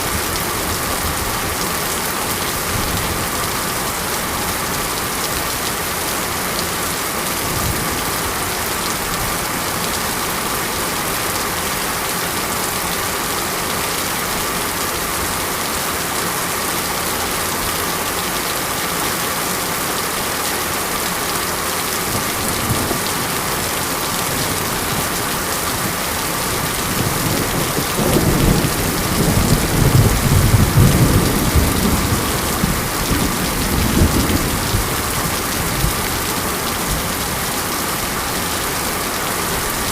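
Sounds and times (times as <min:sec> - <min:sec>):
heavy rain falling: 0:00.0 - 0:39.9
thunder rumbling: 0:26.6 - 0:36.1.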